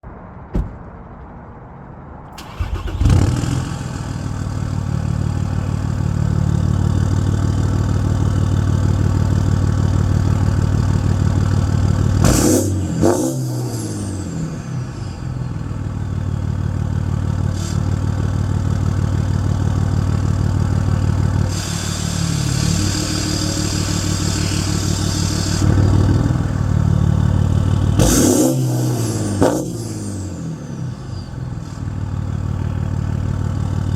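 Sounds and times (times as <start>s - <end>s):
diesel engine starting and idling: 2.3s - 33.9s
sharp engine rev: 2.4s - 4.7s, 12.1s - 15.6s, 21.4s - 31.8s.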